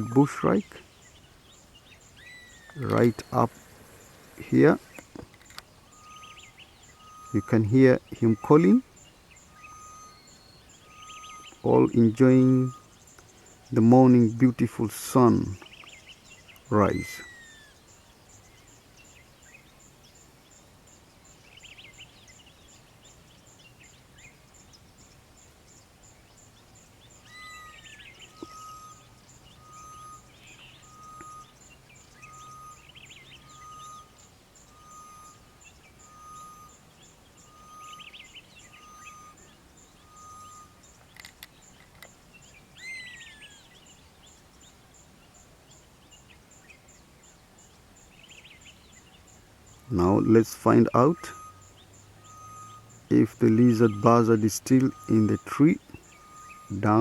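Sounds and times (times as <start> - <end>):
bird chorus: 0.0 - 57.0
bird short level whistles: 9.6 - 11.6, 27.3 - 31.6, 32.2 - 35.4, 51.2 - 53.0
warbling chirps: 27.2 - 41.0, 49.8 - 57.0
downward-sliding bird calls: 27.2 - 43.8, 49.8 - 57.0.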